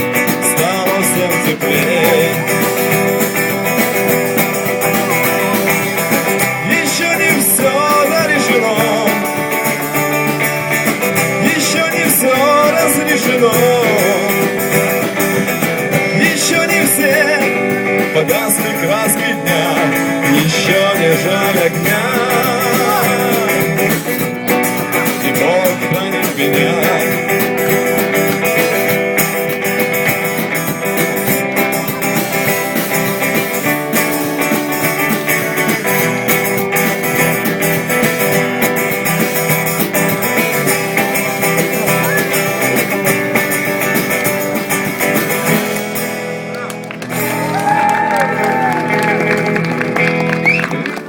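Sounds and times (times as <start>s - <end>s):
person singing: 0.0s - 29.0s
rock band playing: 0.0s - 51.0s.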